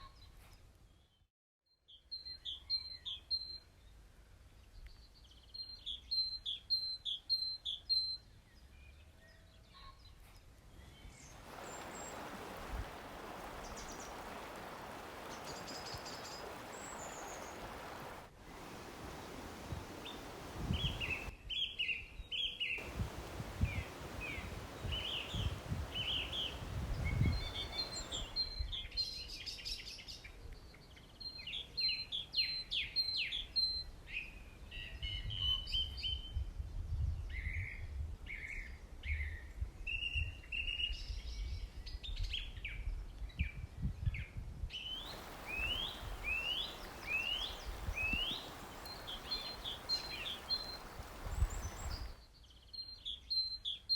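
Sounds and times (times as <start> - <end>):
songbirds chirping: 4.6 - 21.3, 22.4 - 28.7, 44.8 - 53.8.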